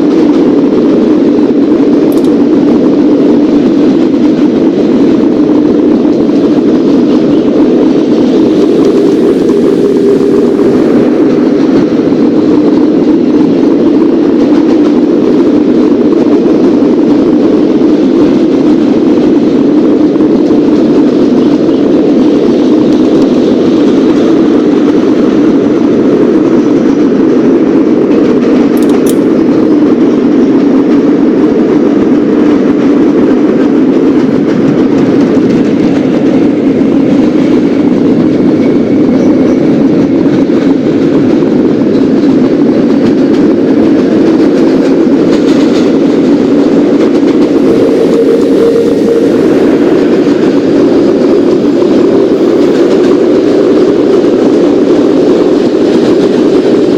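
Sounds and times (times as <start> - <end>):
train wheels rumbling on rail: 0.0 - 56.9.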